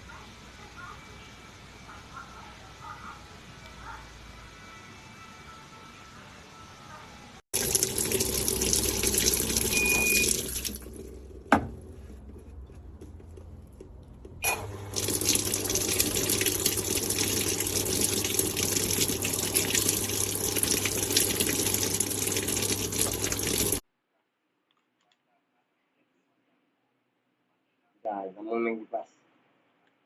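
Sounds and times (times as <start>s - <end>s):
water gushing into washing machine: 7.5s - 11.9s, 14.4s - 23.8s.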